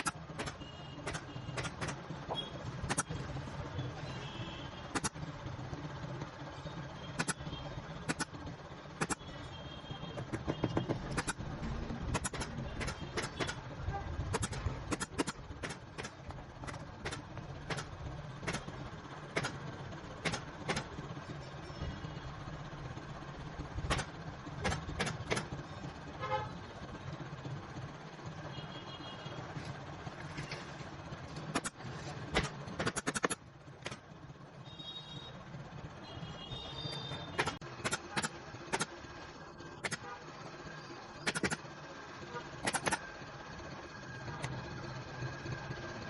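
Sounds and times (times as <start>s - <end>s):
pneumatic staple gun firing: 0.0s - 2.0s, 12.1s - 13.6s, 14.3s - 18.7s, 31.5s - 34.0s, 37.3s - 39.0s, 41.2s - 41.6s, 42.6s - 43.0s
low traffic hum: 0.0s - 46.0s.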